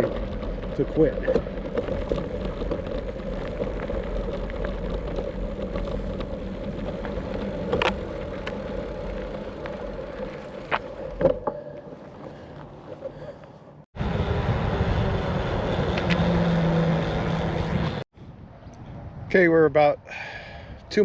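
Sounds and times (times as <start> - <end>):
vehicle hum and rumble: 0.0 - 19.4.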